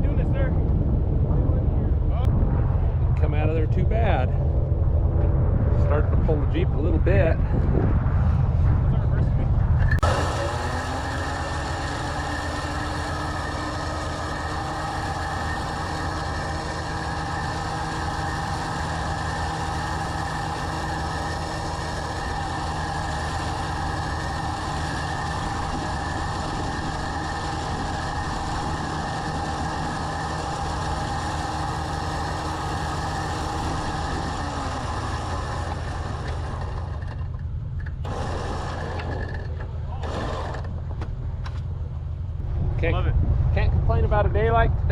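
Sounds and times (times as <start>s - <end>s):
steady hum: 0.0s - 44.9s
truck engine running: 2.2s - 44.7s.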